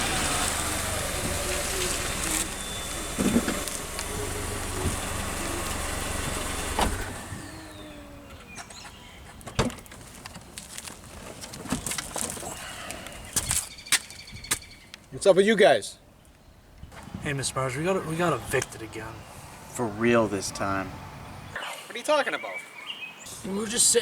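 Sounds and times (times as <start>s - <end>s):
car engine humming: 0.0s - 10.3s, 17.0s - 21.6s.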